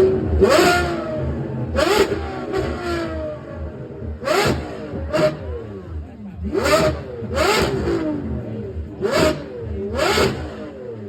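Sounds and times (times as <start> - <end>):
engine revving: 0.0 - 11.0.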